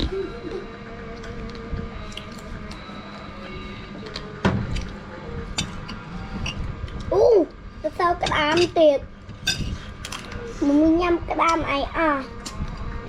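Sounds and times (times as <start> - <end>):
background hum: 0.0 - 13.0
person chewing: 1.2 - 3.3.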